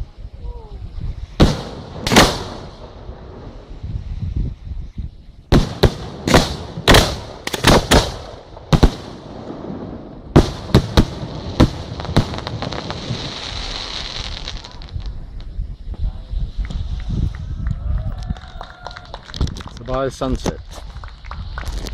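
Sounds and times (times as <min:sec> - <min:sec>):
steady hiss: 0:00.0 - 0:17.9
fireworks bangs: 0:01.3 - 0:03.9, 0:05.5 - 0:17.5.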